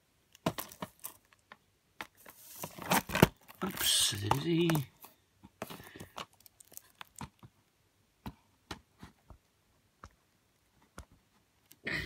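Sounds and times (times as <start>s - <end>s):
plastic cases clicking and tapping: 0.4s - 7.6s.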